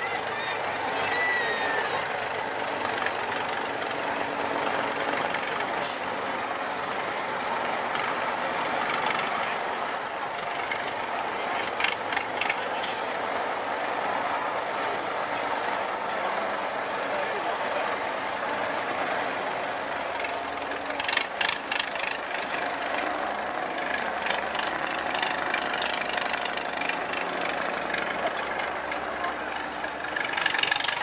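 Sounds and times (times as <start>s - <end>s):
truck diesel engine running: 0.0s - 31.0s
air brake hisses: 5.8s - 6.2s, 7.0s - 7.4s.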